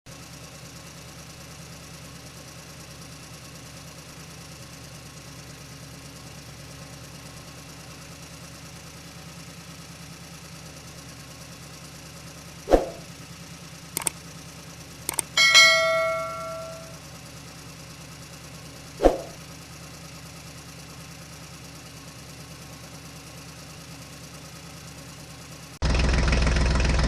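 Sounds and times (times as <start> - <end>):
toy tractor engine idling: 13.8 - 17.0
sharp knock: 15.1 - 16.9.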